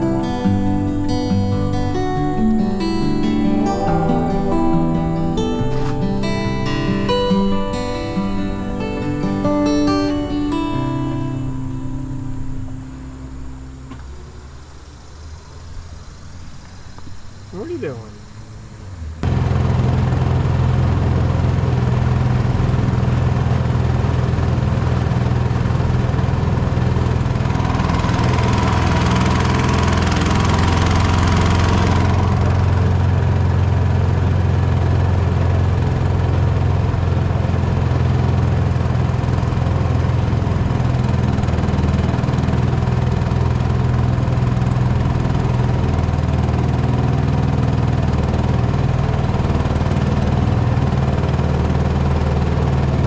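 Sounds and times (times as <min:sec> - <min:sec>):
boat motor droning: 0:00.0 - 0:53.0.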